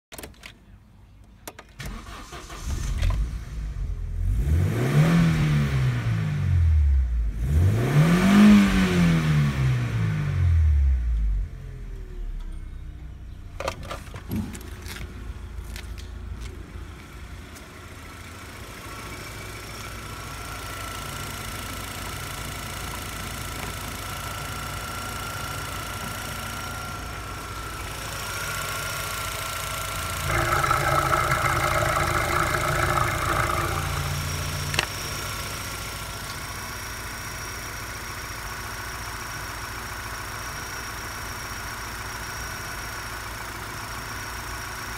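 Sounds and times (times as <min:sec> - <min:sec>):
car engine idling: 0:17.0 - 0:44.9.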